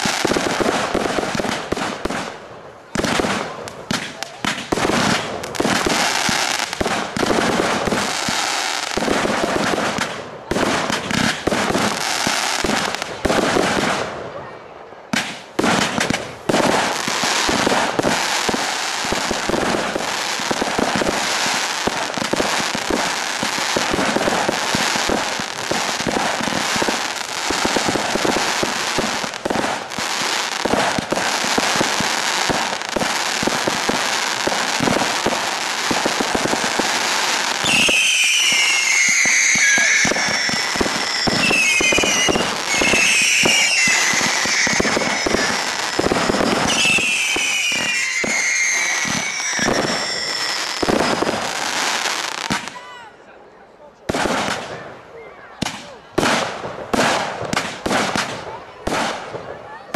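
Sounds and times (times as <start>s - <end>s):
fireworks crackling and banging: 0.0s - 53.1s, 54.0s - 55.0s, 55.6s - 59.9s
firework whistles gliding down: 37.4s - 52.7s.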